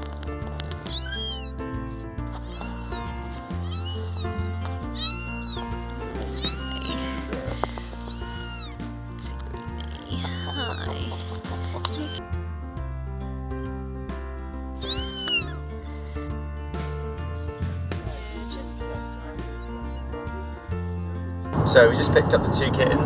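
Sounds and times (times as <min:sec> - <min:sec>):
kittens mewing: 0:00.0 - 0:01.6, 0:02.3 - 0:12.2, 0:14.8 - 0:15.7, 0:18.1 - 0:20.7
background music: 0:00.0 - 0:23.0.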